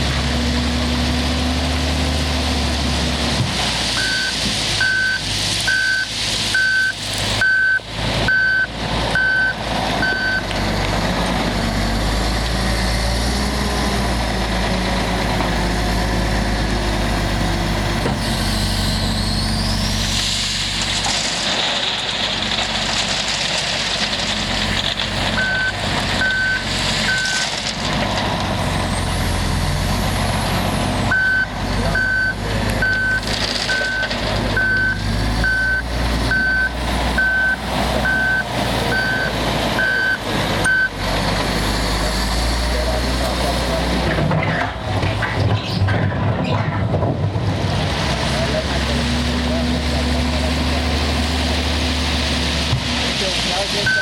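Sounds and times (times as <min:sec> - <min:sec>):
wheel loader diesel engine: 0:00.0 - 0:54.0
reverse alarm beeping: 0:04.0 - 0:10.4, 0:25.4 - 0:27.4, 0:31.1 - 0:40.9.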